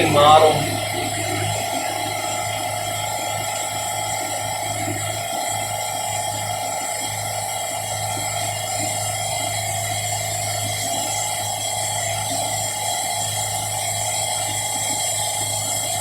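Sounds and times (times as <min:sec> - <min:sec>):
sawmill diesel engine running: 0:00.0 - 0:01.6.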